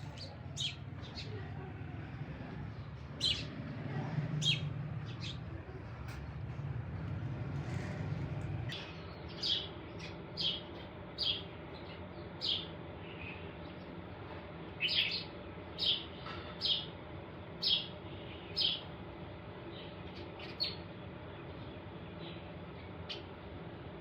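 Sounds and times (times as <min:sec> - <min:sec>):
small bird chirping: 0:00.0 - 0:01.4, 0:02.8 - 0:03.7, 0:04.4 - 0:05.5, 0:08.7 - 0:13.4.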